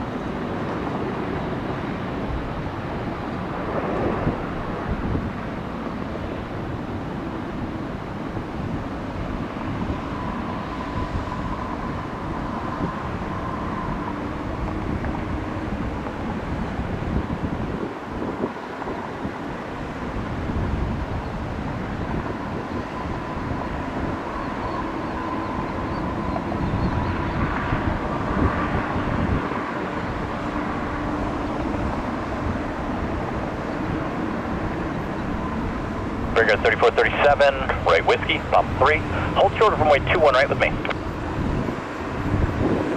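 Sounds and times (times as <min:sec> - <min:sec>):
jet engines rumbling: 0:00.0 - 0:42.9
wind on microphone: 0:00.0 - 0:42.9
faint high whine: 0:34.9 - 0:41.0.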